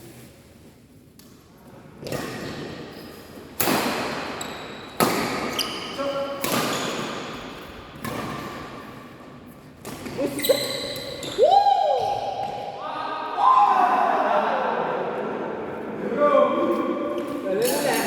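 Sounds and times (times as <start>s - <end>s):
shoes squeaking on court: 4.4s - 8.5s, 9.8s - 11.4s
rackets hitting shuttlecock: 6.4s - 8.5s.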